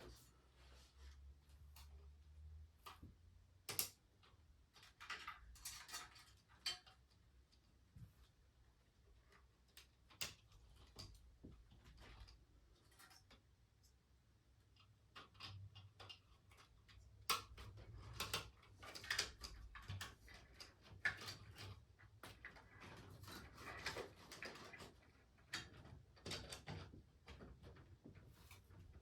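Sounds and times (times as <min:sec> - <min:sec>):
hardware and tools clattering: 0:04.7 - 0:07.2.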